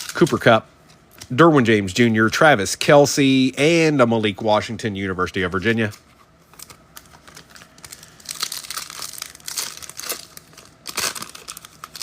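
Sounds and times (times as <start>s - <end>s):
foil wrapper tearing and crinkling: 0.0s - 0.5s, 6.6s - 12.0s.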